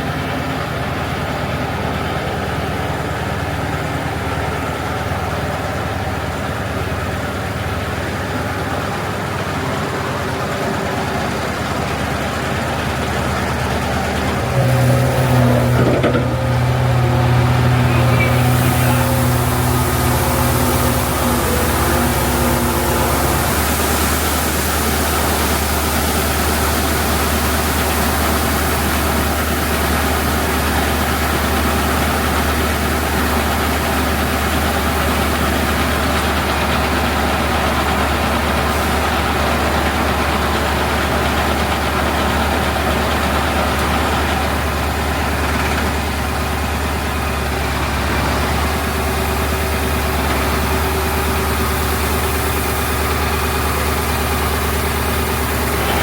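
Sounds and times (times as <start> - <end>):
diesel engine droning: 0.0 - 56.0
rushing noise: 13.1 - 28.4.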